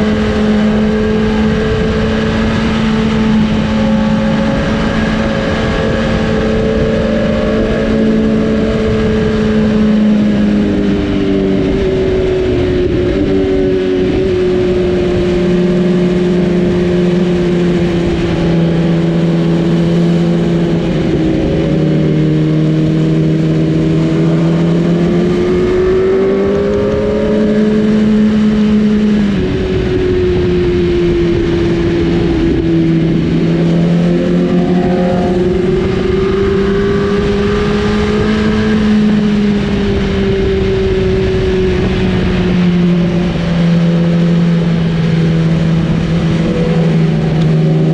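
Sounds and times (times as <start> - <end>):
motorbike engine at high revs: 0.0 - 47.9
rushing noise: 29.4 - 38.4.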